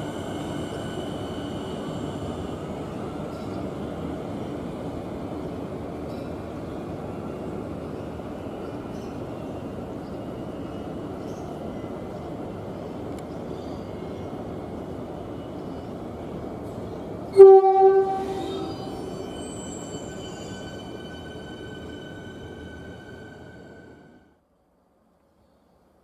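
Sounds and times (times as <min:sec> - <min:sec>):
train rumbling: 0:00.0 - 0:24.3
train horn blast: 0:17.3 - 0:19.3.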